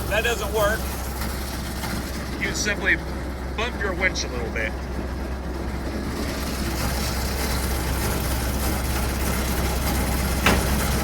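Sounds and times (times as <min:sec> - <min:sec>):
truck engine idling: 0:00.0 - 0:11.0
short knock: 0:10.4 - 0:11.0.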